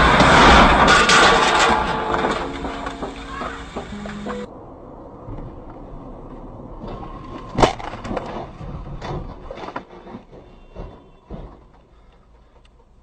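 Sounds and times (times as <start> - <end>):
metal crunching and scraping: 0.0 - 4.5
vehicle collision impact: 0.0 - 4.5.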